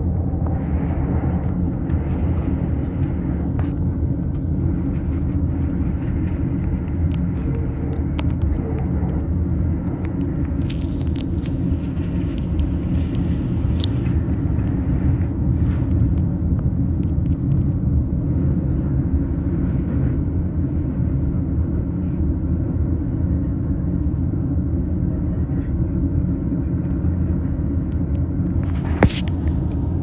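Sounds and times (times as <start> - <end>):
train interior rumble: 0.0 - 30.0.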